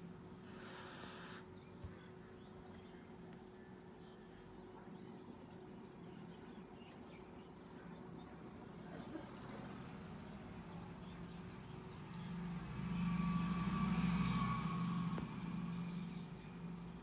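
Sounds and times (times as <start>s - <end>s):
vehicle engine passing by: 9.4s - 17.0s.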